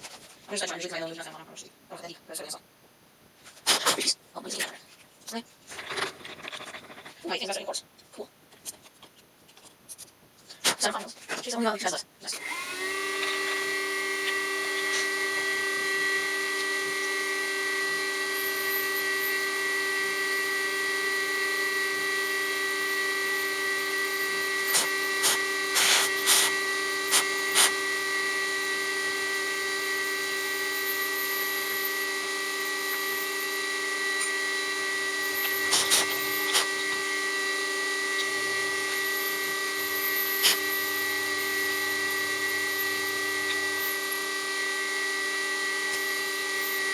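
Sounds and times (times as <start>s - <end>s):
end mill cutting aluminium: 12.4s - 46.9s
milling machine spindle whining: 12.4s - 46.9s.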